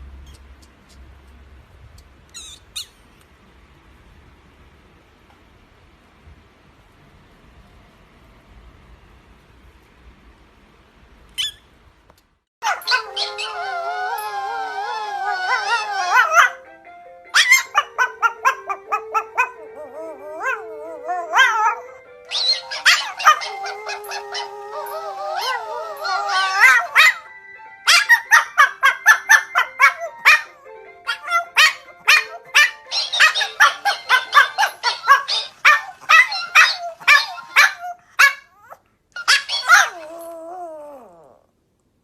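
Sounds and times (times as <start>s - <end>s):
dog howling: 12.6s - 16.7s, 17.4s - 27.3s, 27.9s - 41.5s
dog barking: 15.7s - 16.6s, 17.4s - 19.7s, 21.3s - 24.5s, 26.3s - 27.2s, 27.9s - 40.0s.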